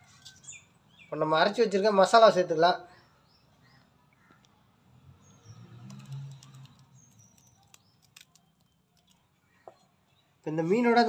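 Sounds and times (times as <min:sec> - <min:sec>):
birds chirping: 0:02.8 - 0:11.0
soft clicks: 0:05.8 - 0:09.2.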